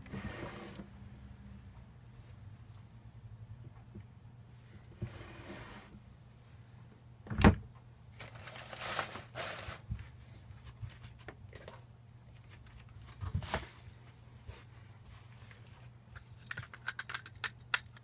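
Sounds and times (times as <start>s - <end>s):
sharp knocks of parts: 16.2s - 18.0s.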